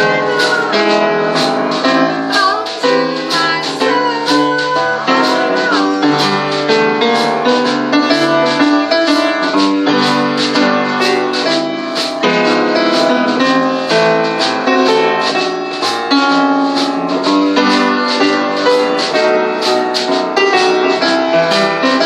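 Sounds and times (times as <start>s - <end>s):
acoustic piano playing: 0.0s - 22.0s
drum kit with cymbal strokes: 0.0s - 22.0s.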